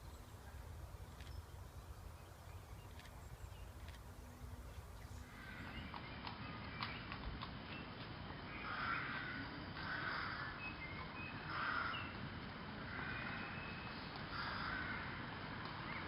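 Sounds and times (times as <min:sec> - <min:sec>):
crow cawing: 0:05.3 - 0:05.8, 0:08.6 - 0:10.6, 0:11.4 - 0:12.2, 0:12.8 - 0:13.6, 0:14.3 - 0:15.3.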